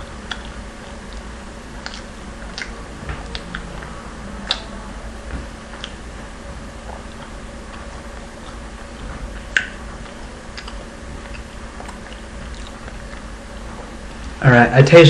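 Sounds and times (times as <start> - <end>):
person chewing: 0.0 - 14.4
low hum: 0.0 - 15.0.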